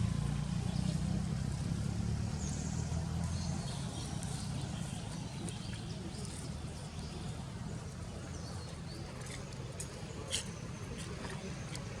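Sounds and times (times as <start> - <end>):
vehicle engine running low: 0.0 - 9.0.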